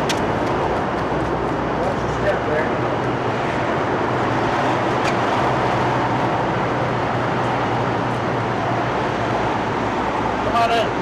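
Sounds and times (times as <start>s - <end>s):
broad rush of noise: 0.0s - 11.0s.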